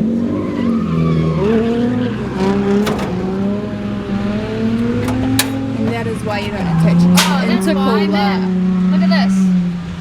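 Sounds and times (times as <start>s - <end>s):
tyres squealing: 2.1s - 8.4s.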